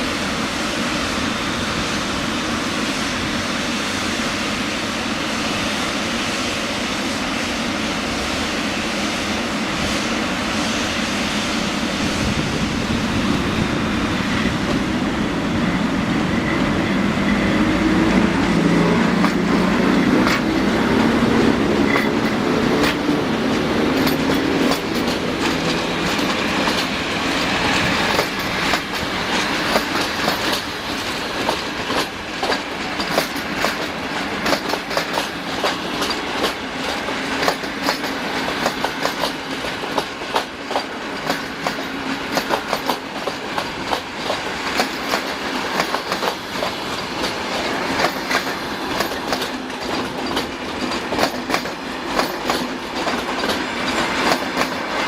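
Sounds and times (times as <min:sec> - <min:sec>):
train wheels clattering over rails: 0:00.0 - 0:55.0.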